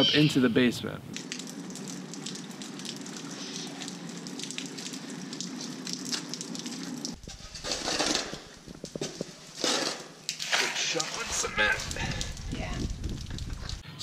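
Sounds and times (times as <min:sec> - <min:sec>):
rain pattering on mud: 0:01.1 - 0:07.2, 0:08.2 - 0:09.6, 0:10.2 - 0:13.8
water drips: 0:01.1 - 0:07.2, 0:08.4 - 0:13.8.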